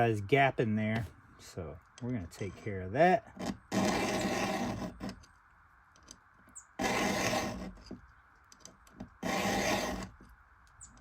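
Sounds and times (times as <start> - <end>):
file scraping chainsaw tooth: 3.2 - 5.4, 6.7 - 11.0.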